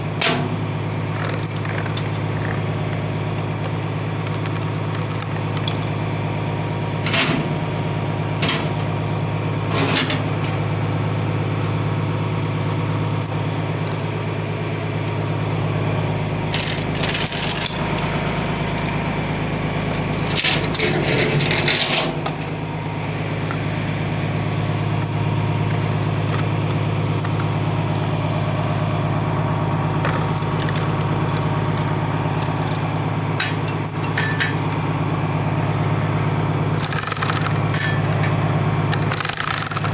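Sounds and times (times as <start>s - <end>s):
tractor engine idling: 0.0s - 39.9s
metal clinking and jangling: 5.6s - 6.0s, 16.6s - 18.1s, 18.8s - 19.0s, 24.6s - 25.0s, 32.7s - 34.6s, 35.2s - 35.4s.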